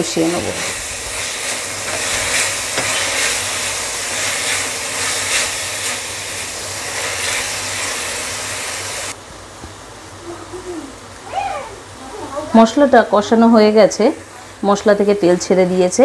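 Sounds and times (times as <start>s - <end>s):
paste sizzling in hot oil: 0.0s - 9.2s.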